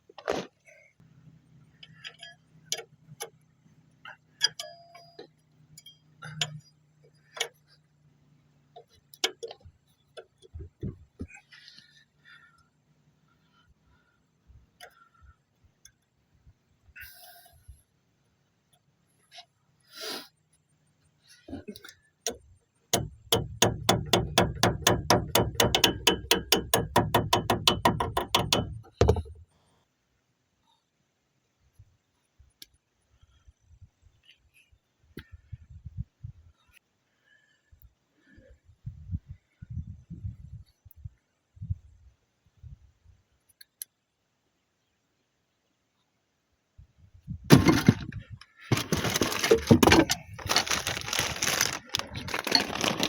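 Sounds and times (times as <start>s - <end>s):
metallic clinks of hand tools: 4.4s - 6.8s.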